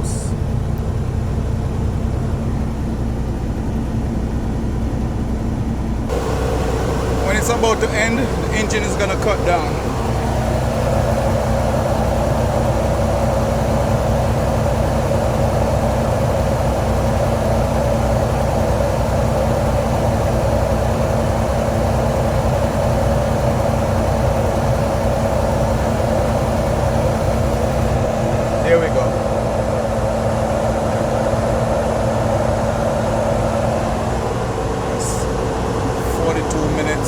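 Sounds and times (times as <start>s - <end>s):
diesel truck engine idling high: 0.0s - 37.0s.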